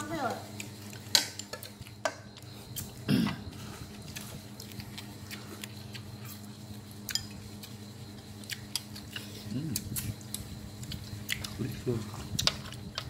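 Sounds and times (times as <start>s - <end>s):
steady low hum: 0.0s - 13.0s
chopsticks and tableware clinking: 7.0s - 7.4s.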